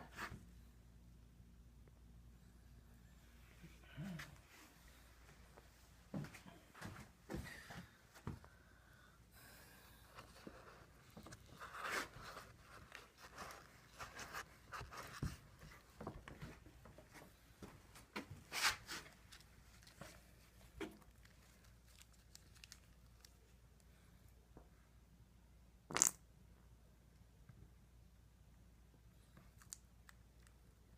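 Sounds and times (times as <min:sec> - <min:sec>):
scrape or rustle: 0:10.2 - 0:15.3, 0:18.5 - 0:19.2.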